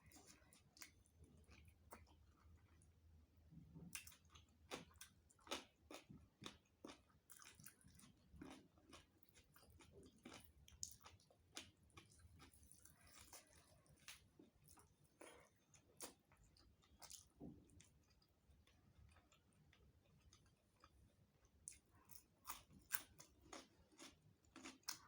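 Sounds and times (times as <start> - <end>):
person chewing food: 0.0 - 25.0.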